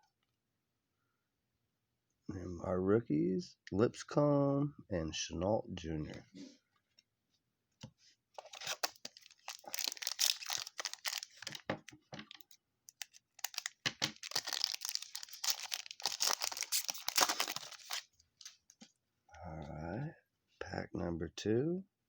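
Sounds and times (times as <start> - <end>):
plastic wrapper tearing and crinkling: 8.4 - 18.6.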